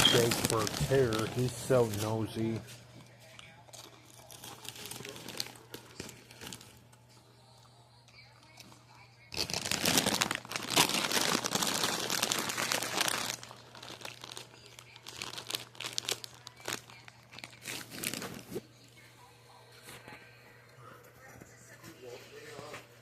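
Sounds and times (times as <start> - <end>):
food packaging crinkling: 0.0 - 6.9, 9.3 - 18.7.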